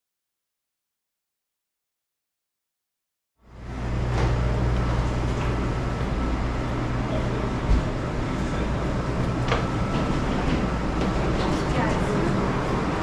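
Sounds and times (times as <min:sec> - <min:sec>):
low machinery hum: 0:03.4 - 0:13.0.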